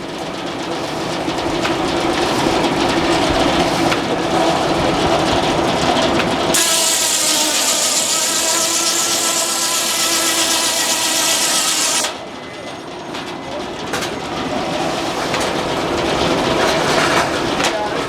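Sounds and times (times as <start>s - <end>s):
sawmill mechanical clatter: 0.0s - 18.0s
saw blade ringing whine: 6.5s - 13.5s.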